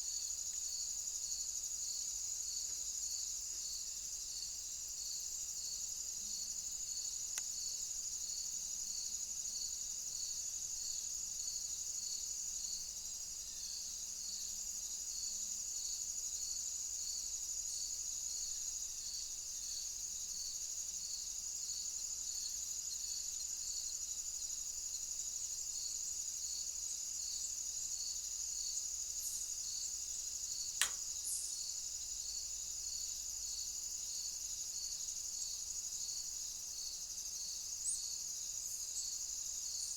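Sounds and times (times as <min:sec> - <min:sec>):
crickets chirping: 0:00.0 - 0:39.9
sharp click: 0:30.8 - 0:31.1.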